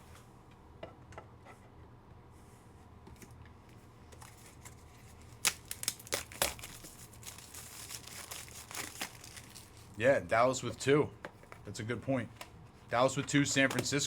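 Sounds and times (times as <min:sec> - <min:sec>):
packaging crinkling and tearing: 0:04.2 - 0:10.0.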